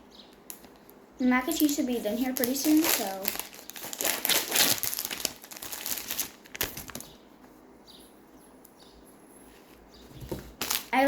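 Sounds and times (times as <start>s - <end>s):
plastic packaging crinkling: 0.5s - 7.2s, 10.3s - 11.0s.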